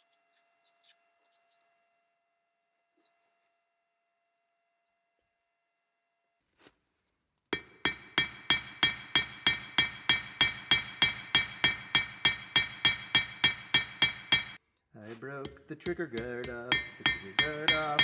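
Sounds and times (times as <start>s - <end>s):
hammer blows on metal ringing: 7.6s - 14.6s, 16.2s - 18.0s.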